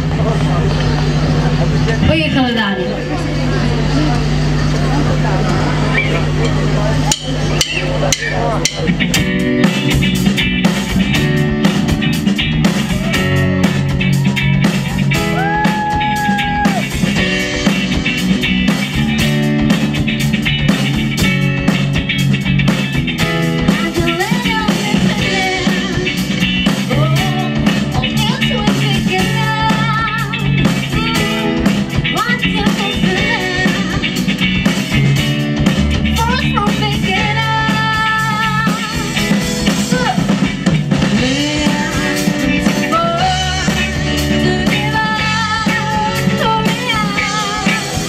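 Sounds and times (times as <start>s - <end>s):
bending electric guitar notes: 0.0s - 48.0s
rock band playing loudly: 0.0s - 48.0s.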